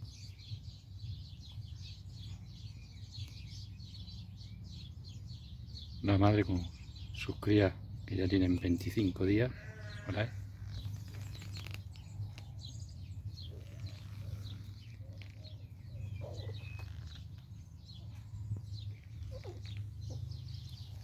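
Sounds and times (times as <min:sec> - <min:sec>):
small birds chirping: 0:00.0 - 0:21.0
soft squeaks: 0:09.6 - 0:12.7, 0:13.4 - 0:17.5, 0:19.0 - 0:20.2.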